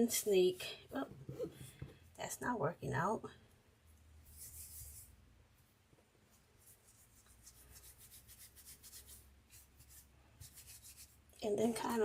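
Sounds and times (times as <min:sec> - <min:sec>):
hands rolling clay: 0:06.3 - 0:12.0.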